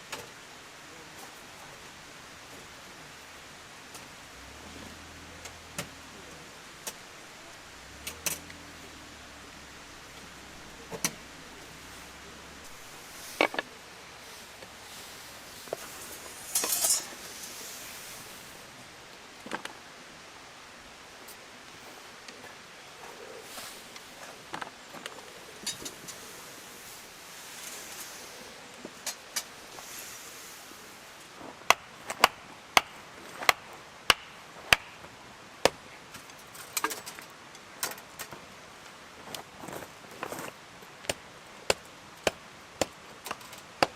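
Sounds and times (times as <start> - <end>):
gear clattering and rustling: 15.6 - 17.6
blade chopping firewood: 31.7 - 35.0, 41.0 - 43.9.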